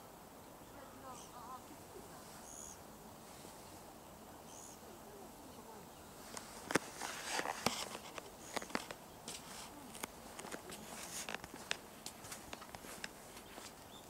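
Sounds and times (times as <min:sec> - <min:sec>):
small birds chirping: 0:00.0 - 0:14.0
rustling: 0:05.1 - 0:14.0.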